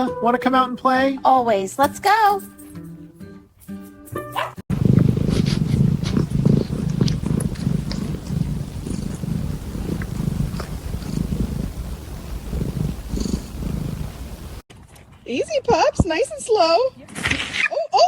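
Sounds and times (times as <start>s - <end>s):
cat purring: 4.6s - 14.7s.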